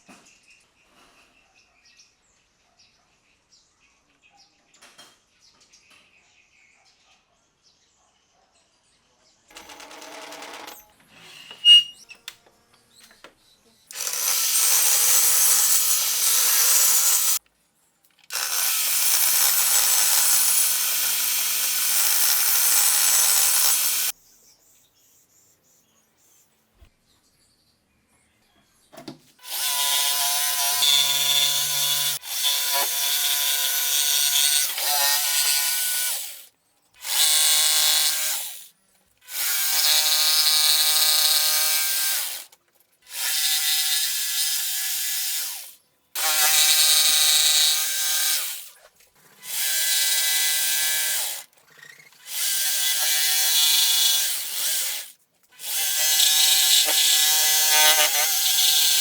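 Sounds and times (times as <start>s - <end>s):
woodworking power tool whining: 9.5s - 12.1s, 13.9s - 17.4s, 18.3s - 24.1s, 29.4s - 36.4s, 37.0s - 38.6s, 39.3s - 42.5s, 43.1s - 45.6s, 46.2s - 48.8s, 49.4s - 59.0s.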